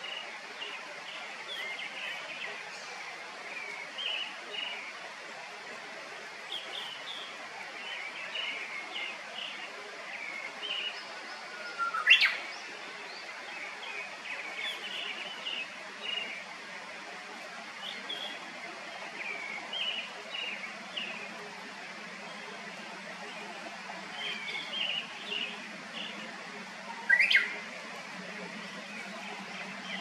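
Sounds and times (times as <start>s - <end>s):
birds chirping: 6.4s - 16.6s, 17.7s - 30.0s.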